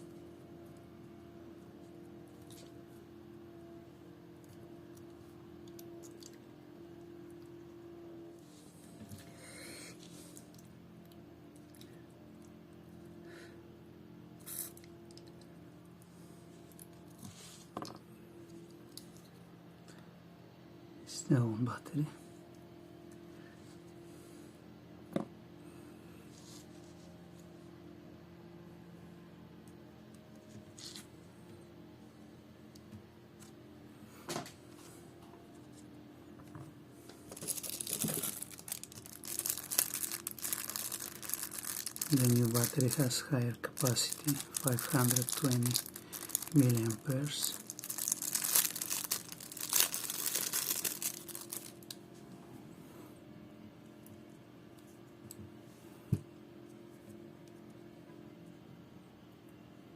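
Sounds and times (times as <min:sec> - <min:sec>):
steady low hum: 0:00.0 - 0:59.9
plastic packaging crinkling and tearing: 0:37.3 - 0:52.0.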